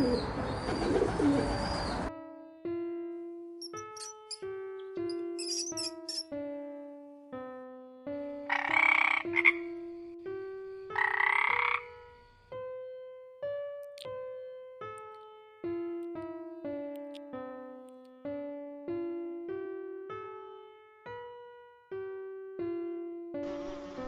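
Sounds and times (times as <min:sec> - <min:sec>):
gentle keyboard music: 0:00.0 - 0:24.0
rasping animal calls: 0:05.2 - 0:06.2, 0:08.5 - 0:09.7, 0:10.9 - 0:12.0.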